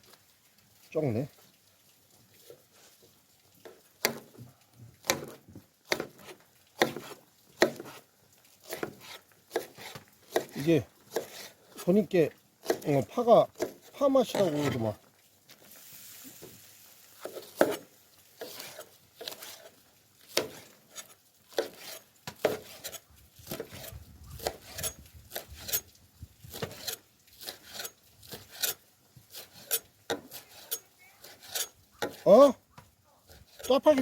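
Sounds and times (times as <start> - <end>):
faint sizzle: 14.2 - 22.2.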